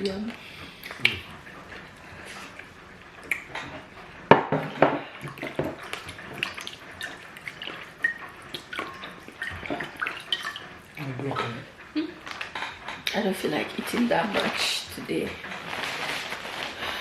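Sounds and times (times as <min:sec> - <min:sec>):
wet chewing and lip-smacking: 0:00.6 - 0:03.8.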